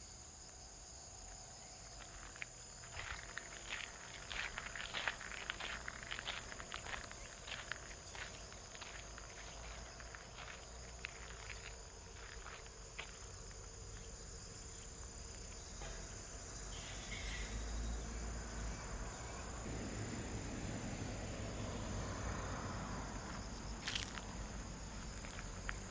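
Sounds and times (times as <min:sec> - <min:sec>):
insects chirring: 0:00.0 - 0:25.9
footsteps crunching: 0:01.2 - 0:14.6, 0:23.1 - 0:25.9.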